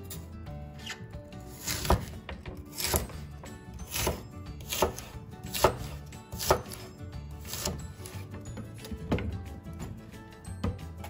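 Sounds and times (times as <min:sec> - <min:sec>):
knife slicing on wooden board: 0:00.7 - 0:03.2, 0:03.8 - 0:08.2.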